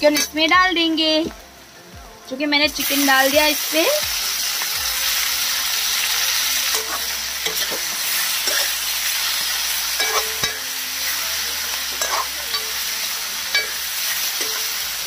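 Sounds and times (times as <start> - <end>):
chicken sizzling in hot oil: 2.4 - 15.0
metal spatula scraping pan: 10.0 - 10.6.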